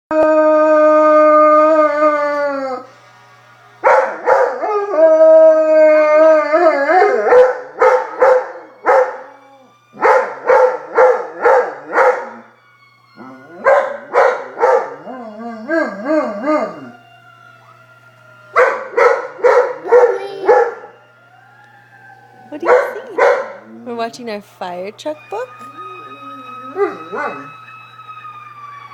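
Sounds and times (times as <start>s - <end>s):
dog howling: 0.1s - 2.9s, 3.8s - 12.6s, 13.2s - 24.0s, 25.0s - 28.9s
dog howl-barks: 3.8s - 12.5s, 13.2s - 17.8s, 18.5s - 21.0s, 25.3s - 27.6s.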